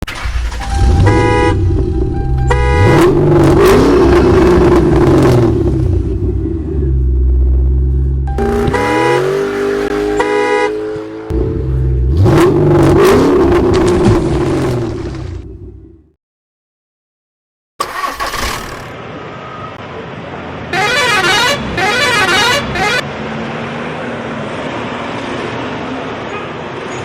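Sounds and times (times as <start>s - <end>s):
engine revving: 0.0s - 15.9s
truck horn honking: 0.1s - 4.2s, 8.3s - 13.1s, 20.7s - 23.0s.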